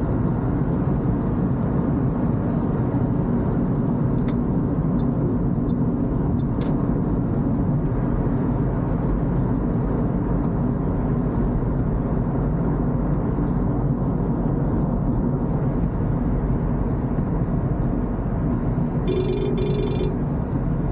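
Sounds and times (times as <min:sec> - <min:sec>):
car driving on wet road: 0:00.0 - 0:19.0.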